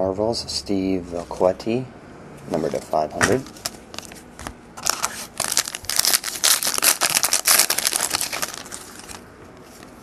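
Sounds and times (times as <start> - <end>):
foil wrapper crinkling: 4.8 - 9.2.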